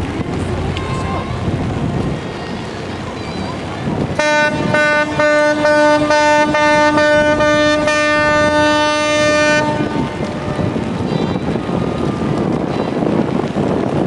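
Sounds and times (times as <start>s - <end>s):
wind noise on microphone: 0.0s - 14.0s
ship's horn long blast: 3.6s - 12.7s
ship's horn short toots: 4.2s - 12.2s.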